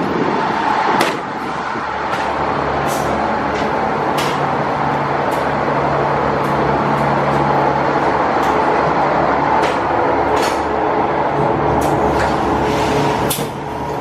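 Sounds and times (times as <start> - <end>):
railcar engine hum: 0.0 - 14.0.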